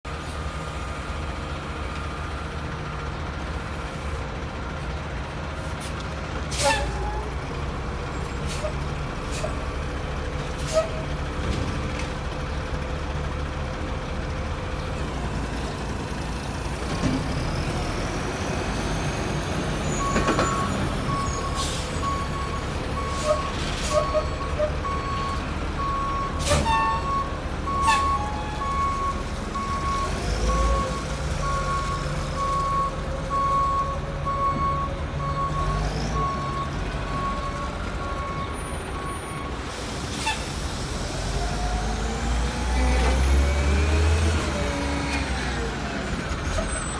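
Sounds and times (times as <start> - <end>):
diesel engine running: 0.1 - 46.9
air brake releases: 5.8 - 7.0, 23.0 - 24.3, 26.3 - 27.0, 39.6 - 40.7
reversing alarm beeping: 19.9 - 39.4.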